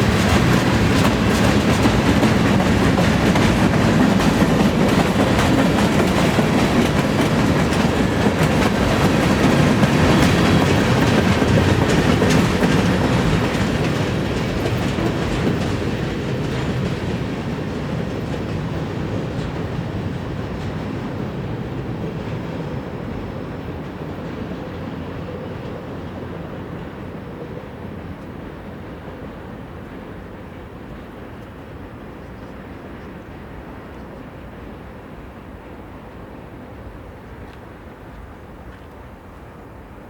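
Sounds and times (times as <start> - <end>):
train wheels clacking over rail joints: 0.0 - 27.5
freight train rumbling: 0.0 - 40.0.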